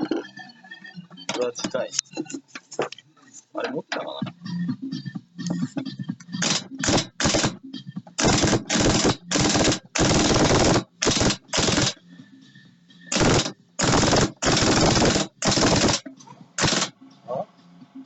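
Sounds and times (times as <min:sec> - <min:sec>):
pneumatic impact wrench hammering: 0:06.4 - 0:07.6, 0:08.2 - 0:12.0, 0:13.1 - 0:16.9.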